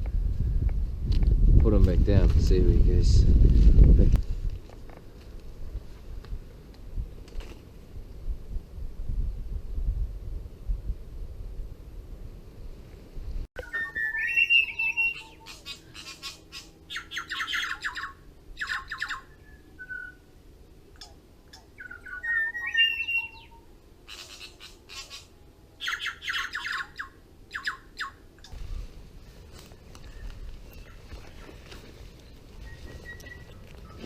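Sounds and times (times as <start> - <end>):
bird squawks: 13.6 - 20.2, 21.5 - 28.2
birds whistling rising notes: 13.6 - 20.3, 21.0 - 34.0.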